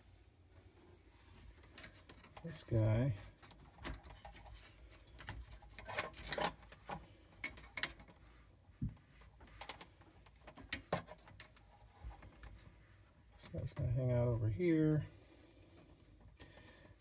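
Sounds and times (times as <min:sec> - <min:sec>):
hands handling wires and plastic: 0:01.3 - 0:14.0.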